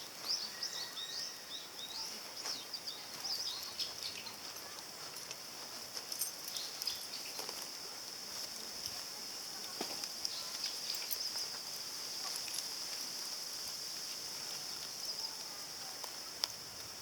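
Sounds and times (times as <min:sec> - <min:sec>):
high-pitched insect chorus: 0:00.0 - 0:17.0
faint clicks: 0:13.9 - 0:17.0.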